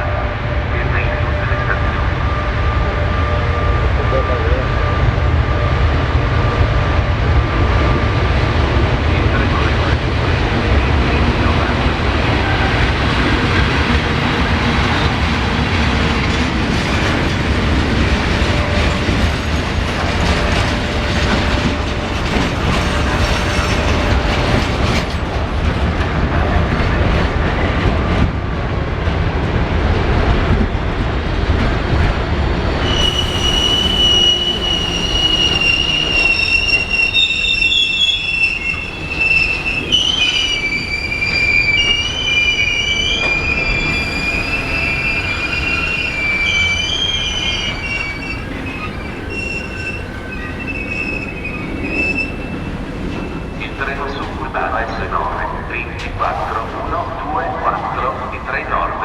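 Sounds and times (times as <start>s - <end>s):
freight train rumbling and clattering: 0.0s - 59.0s
train wheel squealing: 11.4s - 25.3s, 32.8s - 56.9s.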